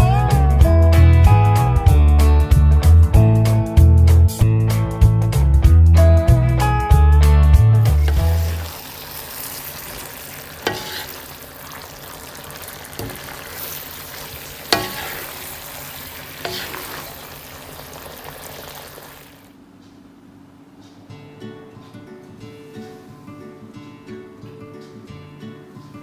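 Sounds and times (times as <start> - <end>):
spatula stirring food: 8.0 - 19.2
food sizzling in oil: 8.0 - 19.5
spatula knocking against pan: 14.7 - 15.0.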